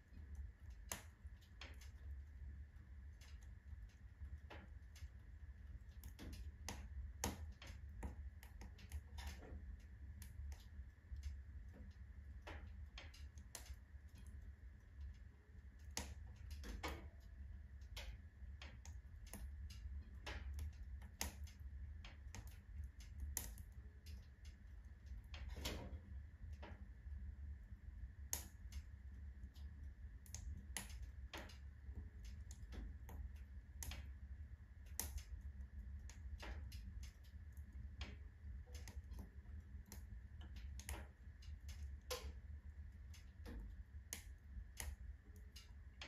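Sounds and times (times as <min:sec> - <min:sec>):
firewood crackling and popping: 0:00.0 - 0:46.0
stove low rumble: 0:00.0 - 0:46.0.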